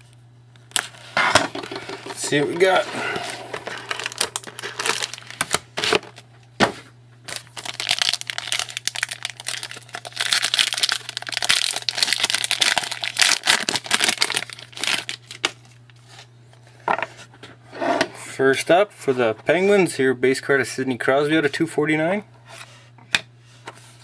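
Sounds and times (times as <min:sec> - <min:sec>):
plastic wrapper crinkling and tearing: 0:00.7 - 0:06.2, 0:07.3 - 0:16.0.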